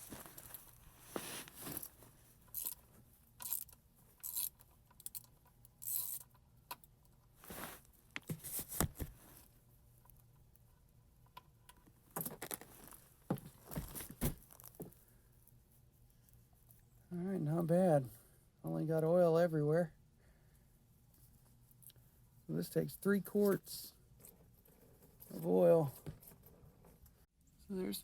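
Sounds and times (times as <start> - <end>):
rustling: 0.0 - 4.4, 7.3 - 10.2, 11.9 - 17.0.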